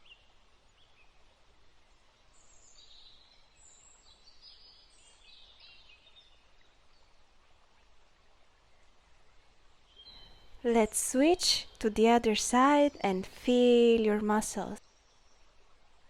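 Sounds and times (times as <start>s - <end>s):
bird chirps and warbles: 0.0s - 7.9s, 9.8s - 11.0s, 14.0s - 16.0s
low steady hiss: 0.0s - 16.0s.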